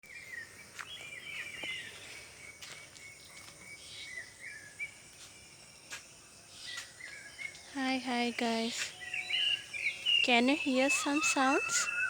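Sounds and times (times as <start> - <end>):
night bird warbling call: 8.5 - 12.0.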